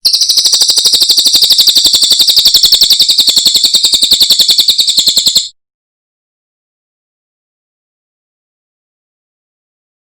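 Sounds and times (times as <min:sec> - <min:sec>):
songbird trilling: 0:00.0 - 0:05.5.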